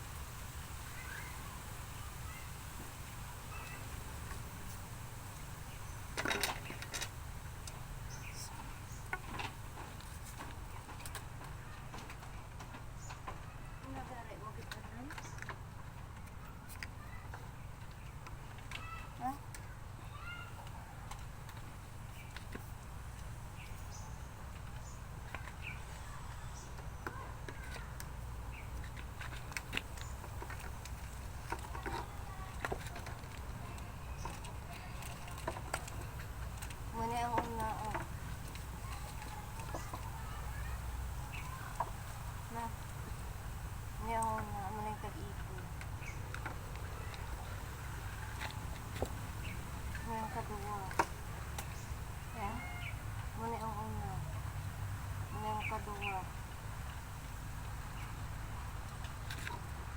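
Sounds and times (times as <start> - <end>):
faint high chirps: 0.8 - 2.7
bird chirps: 1.0 - 1.6.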